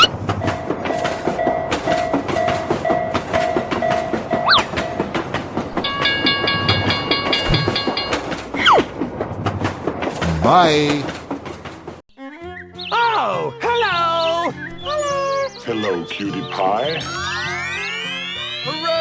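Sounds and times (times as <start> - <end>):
train wheels clacking: 0.1 - 12.0
crossing warning bell: 0.4 - 8.5
pulsing chord of tones: 16.3 - 19.0.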